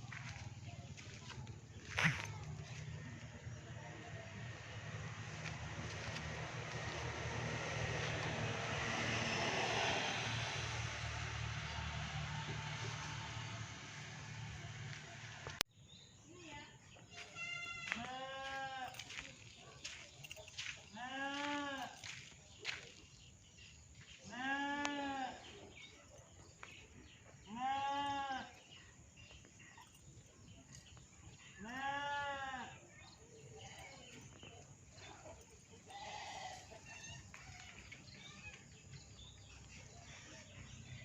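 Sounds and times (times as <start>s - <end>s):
livestock bleating: 17.4s - 18.8s, 20.9s - 22.0s, 24.3s - 25.4s, 27.5s - 28.6s, 31.6s - 32.8s, 35.9s - 36.8s.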